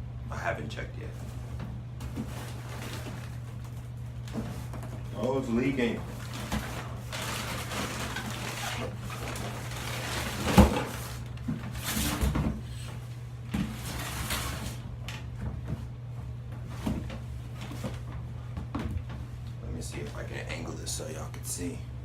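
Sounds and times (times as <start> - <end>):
steady low hum: 0.0 - 22.0
bags rustling: 2.0 - 12.3.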